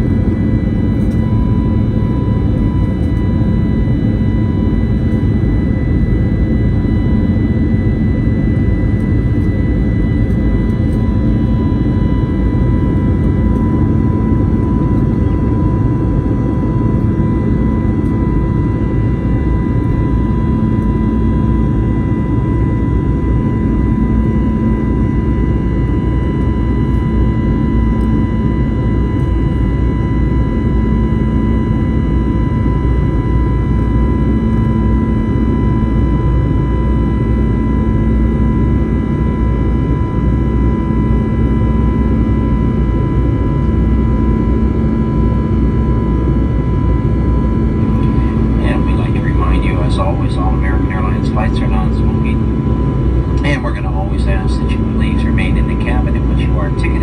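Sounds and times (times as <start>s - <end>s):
jet engine rumble in cabin: 0.0s - 57.0s
high whining engine tones: 45.7s - 57.0s.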